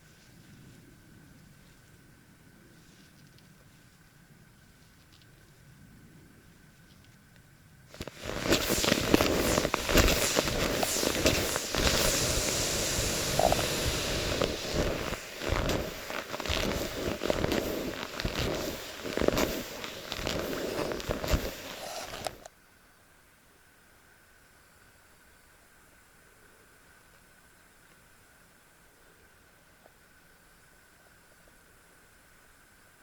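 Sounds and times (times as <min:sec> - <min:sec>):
crackling and rustling at microphone: 0:00.0 - 0:22.5.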